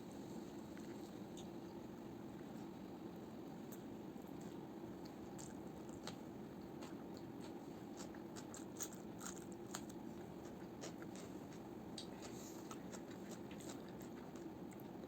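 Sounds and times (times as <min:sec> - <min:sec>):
low room hum: 0:00.0 - 0:15.0
person chewing food: 0:03.7 - 0:15.0.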